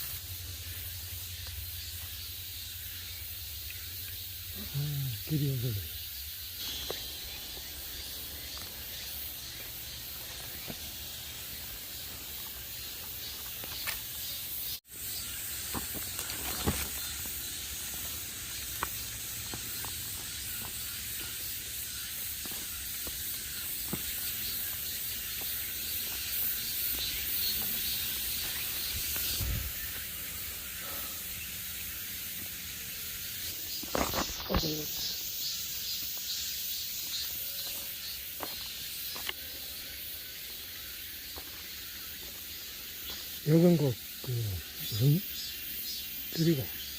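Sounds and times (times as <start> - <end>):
steady high hiss: 0.0 - 46.9
footsteps through undergrowth: 6.6 - 14.5, 15.5 - 30.4, 33.5 - 35.0, 35.9 - 39.4.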